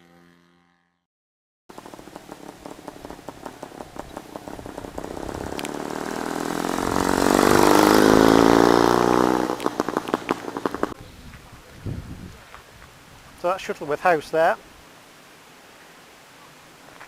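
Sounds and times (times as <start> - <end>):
motorcycle engine running: 1.7 - 11.0.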